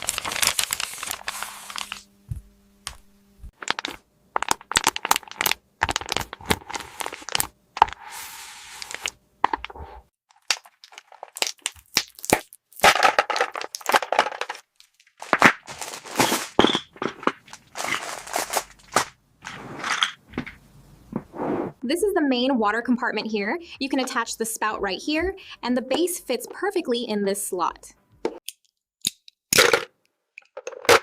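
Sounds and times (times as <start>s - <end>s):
packaging crinkling: 0.0s - 2.1s, 3.6s - 7.5s, 10.3s - 19.2s.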